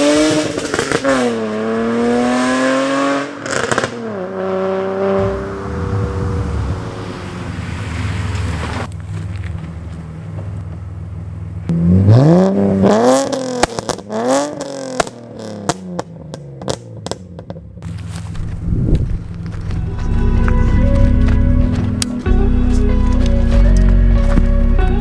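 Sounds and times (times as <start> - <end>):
exhaust crackles and pops: 0.0 - 1.6, 3.4 - 25.0
car engine idling and revving: 0.0 - 25.0.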